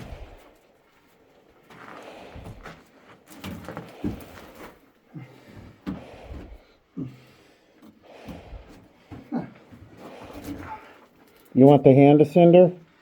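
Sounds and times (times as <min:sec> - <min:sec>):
boots and hands on ladder rungs: 0:01.1 - 0:11.9
grunting breaths: 0:01.8 - 0:11.6.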